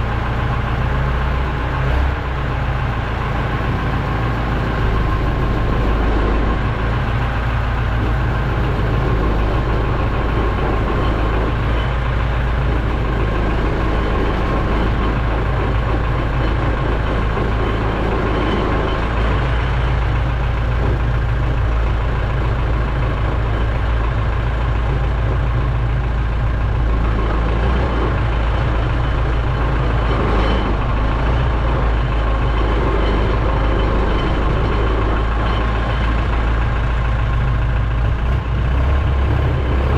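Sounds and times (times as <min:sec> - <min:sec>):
heavy vehicle engine rumbling: 0:00.0 - 0:39.9.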